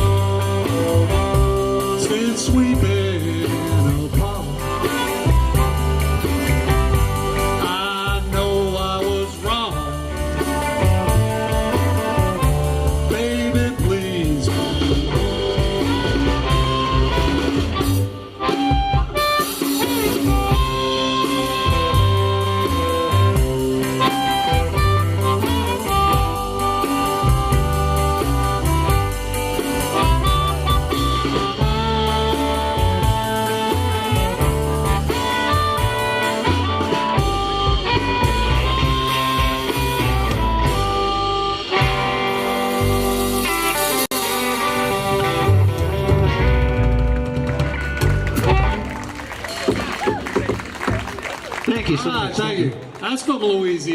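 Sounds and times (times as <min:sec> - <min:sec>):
bass: 0:00.0 - 0:53.9
drums: 0:00.0 - 0:53.9
guitar: 0:00.0 - 0:53.9
harmonica holding long notes: 0:09.7 - 0:49.0.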